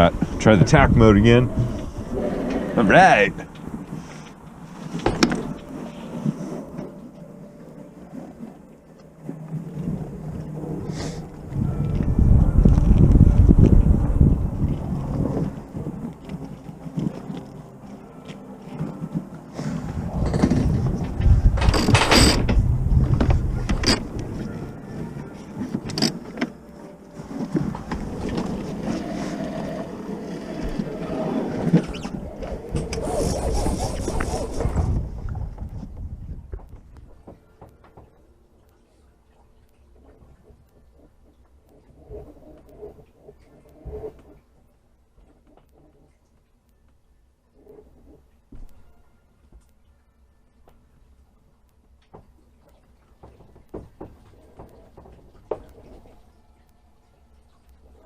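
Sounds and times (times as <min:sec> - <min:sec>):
wind buffeting microphone: 0:00.0 - 0:04.5, 0:09.4 - 0:17.2, 0:19.8 - 0:25.2, 0:27.5 - 0:37.3
water rushing along hull: 0:00.0 - 0:46.7, 0:51.1 - 0:58.0
gear knocking and clattering: 0:20.2 - 0:24.1.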